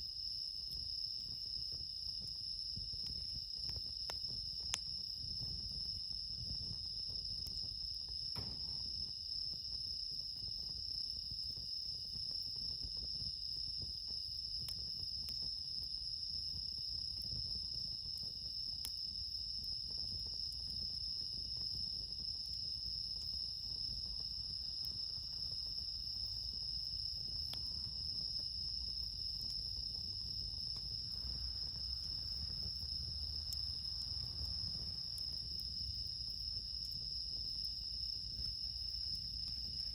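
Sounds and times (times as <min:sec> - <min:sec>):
crickets trilling: 0:00.1 - 0:39.9
low rumble: 0:30.9 - 0:35.6.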